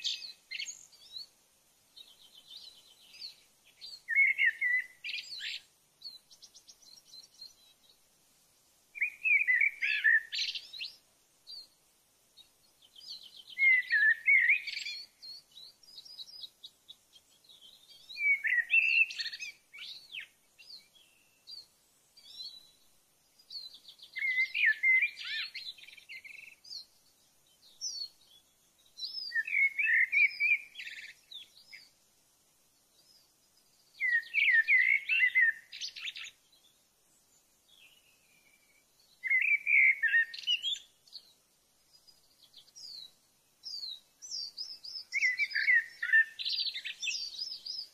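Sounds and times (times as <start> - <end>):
songbird singing: 0.0 - 47.9.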